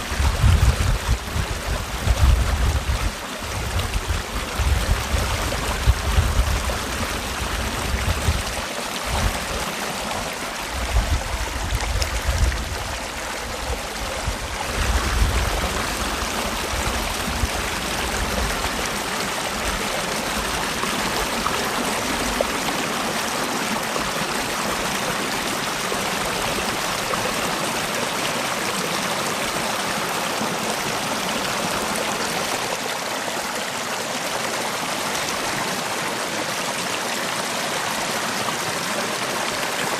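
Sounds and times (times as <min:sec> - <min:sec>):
wind buffeting microphone: 0:00.0 - 0:22.6
water rushing over rocks: 0:00.0 - 0:39.9.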